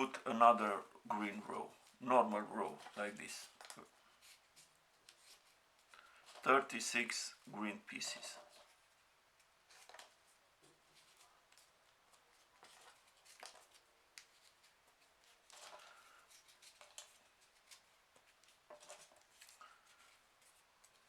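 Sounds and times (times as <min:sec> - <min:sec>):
paper rustling and crinkling: 0:01.2 - 0:21.0.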